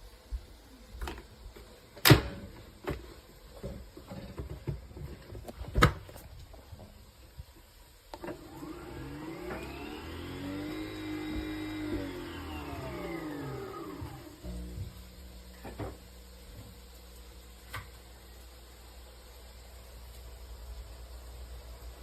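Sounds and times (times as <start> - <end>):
coffee machine motor whine: 8.2 - 22.0.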